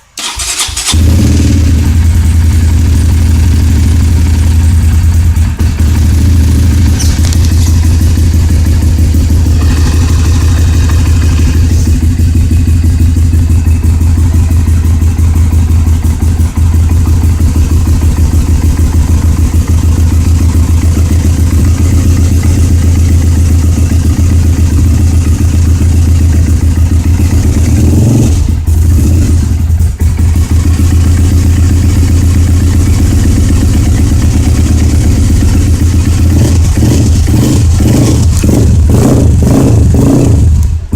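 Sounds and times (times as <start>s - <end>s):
dirt bike engine running: 0.2s - 40.9s.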